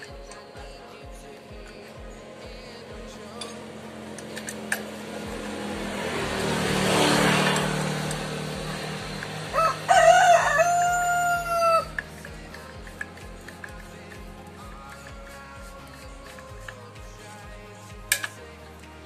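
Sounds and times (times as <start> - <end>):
rush of noise: 2.0 - 10.7
rooster crowing: 9.4 - 12.0.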